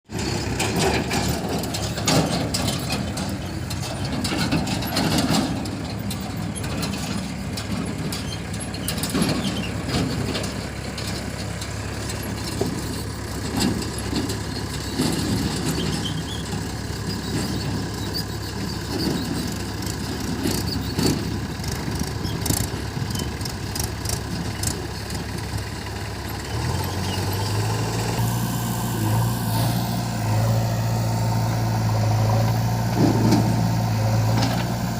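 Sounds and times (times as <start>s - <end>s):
diesel engine running: 0.1s - 34.9s
knocks and clanks: 0.6s - 25.3s, 32.8s - 34.8s.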